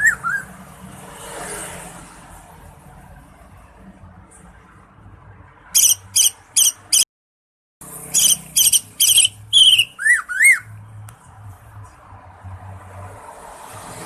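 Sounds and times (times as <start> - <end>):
bird singing rapid high notes: 5.8 - 7.1, 8.0 - 10.8.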